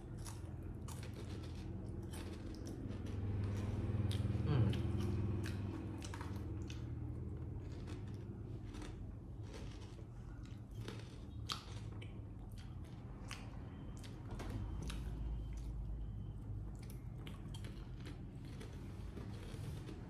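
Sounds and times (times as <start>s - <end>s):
potato chips crunching: 0.0s - 13.5s, 16.9s - 20.0s
low steady hum: 0.0s - 20.0s.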